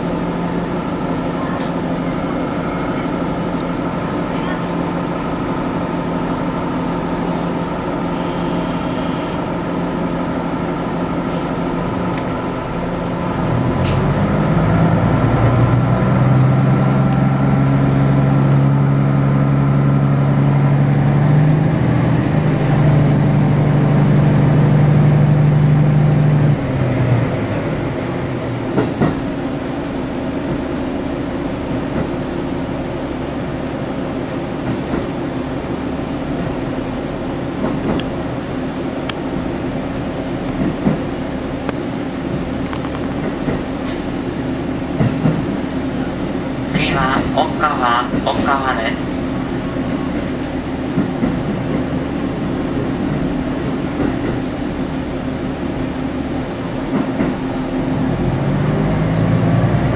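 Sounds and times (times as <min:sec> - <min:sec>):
train drive droning: 0:00.0 - 0:59.9
train interior hum: 0:00.0 - 0:59.9.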